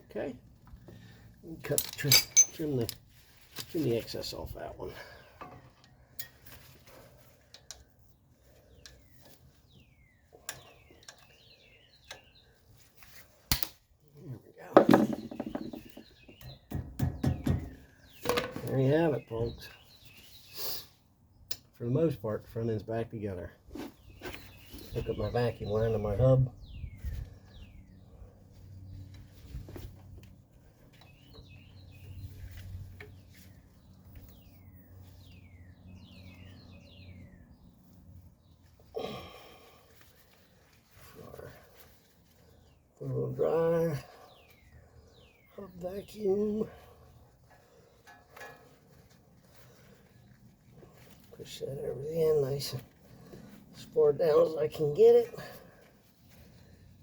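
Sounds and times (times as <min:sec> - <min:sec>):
bird chirping: 0:08.4 - 0:13.2, 0:14.9 - 0:21.7, 0:23.7 - 0:56.7.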